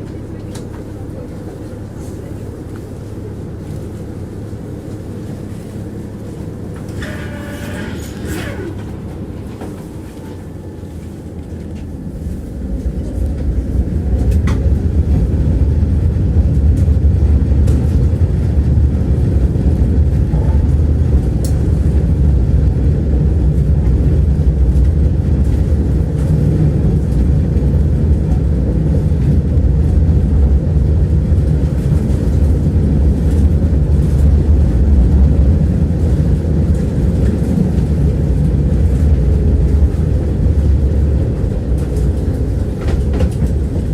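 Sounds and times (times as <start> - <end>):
tram wheels rumbling on rails: 0.0 - 43.9.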